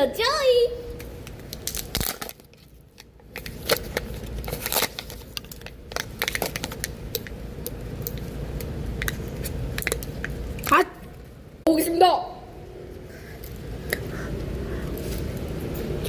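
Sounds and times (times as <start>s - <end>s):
plastic packaging crinkling: 1.3s - 7.4s.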